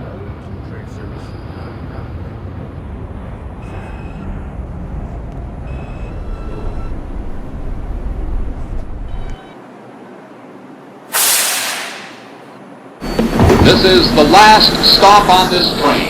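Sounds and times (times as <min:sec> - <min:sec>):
subway car low rumble: 0:00.0 - 0:16.0
compressed air hiss: 0:11.1 - 0:12.4.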